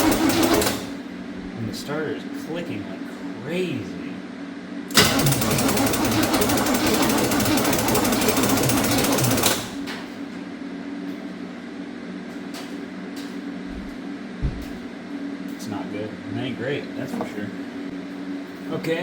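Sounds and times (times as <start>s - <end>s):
starter clicking rapidly: 0.0s - 0.9s, 4.9s - 9.8s.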